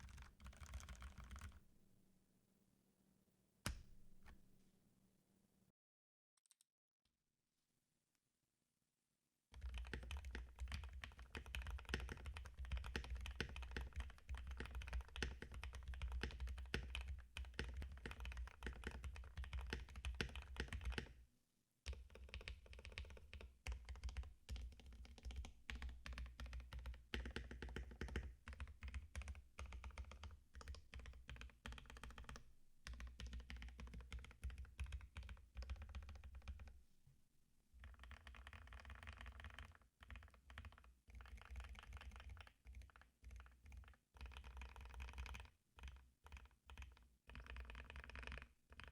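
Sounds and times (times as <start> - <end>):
mechanical keyboard typing: 0.0 - 1.6, 9.5 - 21.1, 21.9 - 36.7, 37.8 - 48.9.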